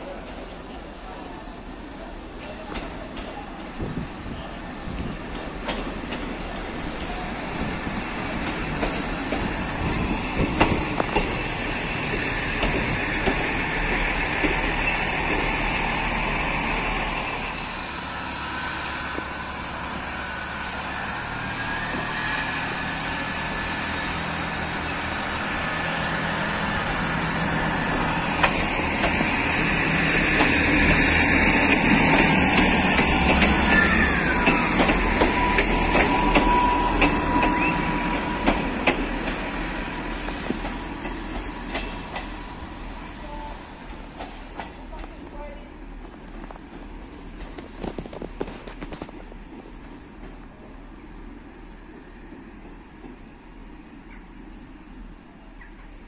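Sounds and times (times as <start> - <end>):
diesel train engine rumble: 0.0 - 56.0
brakes squealing: 30.8 - 38.9.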